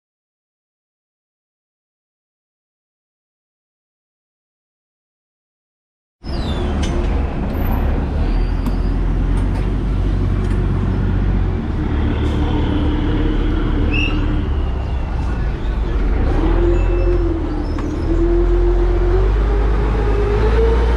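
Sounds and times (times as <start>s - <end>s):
boat engine rumbling: 6.2s - 20.9s.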